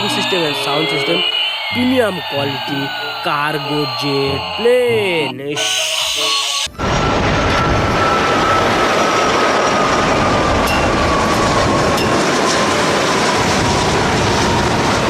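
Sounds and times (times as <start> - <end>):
toy jet engine roar: 0.0 - 15.0.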